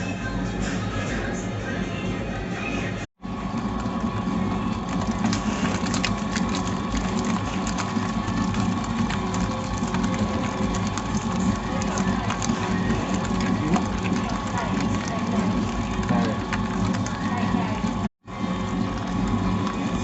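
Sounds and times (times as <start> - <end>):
electric mixer motor hum: 3.2 - 20.0.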